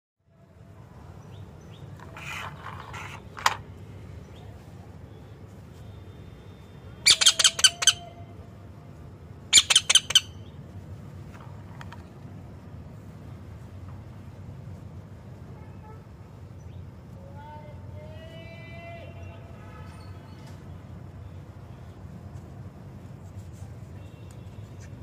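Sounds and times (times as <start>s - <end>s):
parrot squawking: 7.0s - 8.2s, 9.5s - 10.4s.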